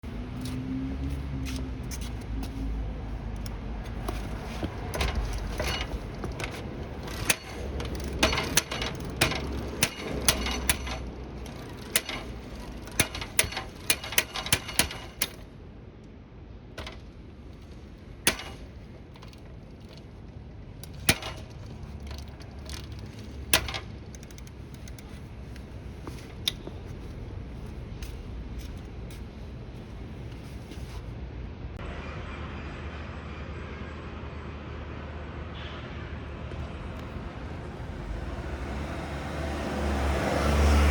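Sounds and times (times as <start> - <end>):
bicycle rattling clacks and knocks: 3.3 - 15.5, 16.8 - 29.5.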